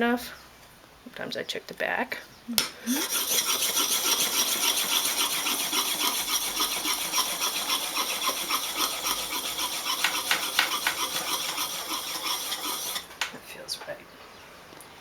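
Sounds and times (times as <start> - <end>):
gouge scraping on wet whetstone: 2.9 - 13.1.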